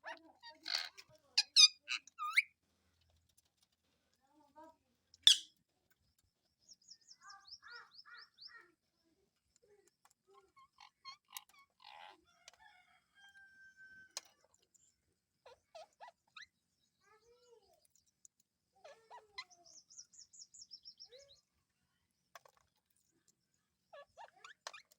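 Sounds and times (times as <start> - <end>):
parrot chirping and whistling: 5.3 - 5.5.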